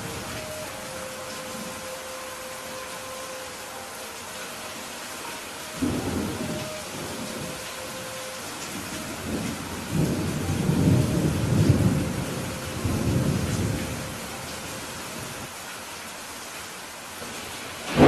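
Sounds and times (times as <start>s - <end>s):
rain hissing: 0.0s - 18.0s
thunder rumbling: 5.8s - 14.5s.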